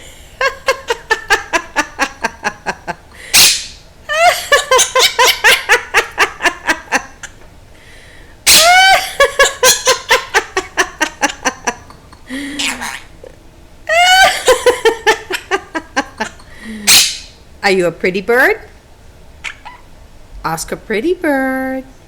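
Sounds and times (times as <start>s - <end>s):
parrot laugh-like calls: 0.4s - 7.4s, 8.5s - 17.4s, 19.4s - 19.9s
parrot harsh squawks: 3.3s - 3.8s, 8.5s - 9.0s, 12.5s - 13.2s, 16.9s - 17.4s, 19.4s - 19.9s.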